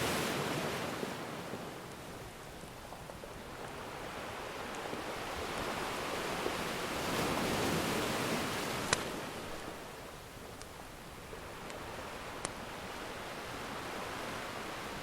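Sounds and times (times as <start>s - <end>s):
ocean waves washing: 0.0s - 15.0s
wood fire popping: 10.5s - 10.8s.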